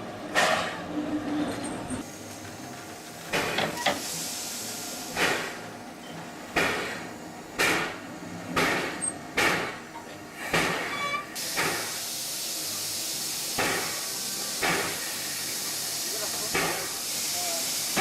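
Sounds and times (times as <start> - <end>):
steam locomotive chuffs: 0.3 - 18.0
steam hiss: 2.9 - 5.7, 8.6 - 18.0.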